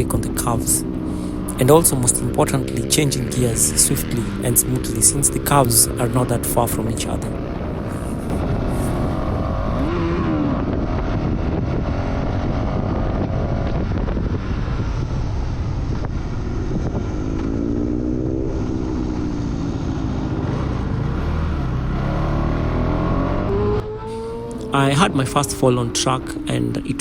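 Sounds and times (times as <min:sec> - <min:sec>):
wind rushing on microphone: 0:00.0 - 0:21.0
motorcycle engine revving: 0:00.0 - 0:27.0.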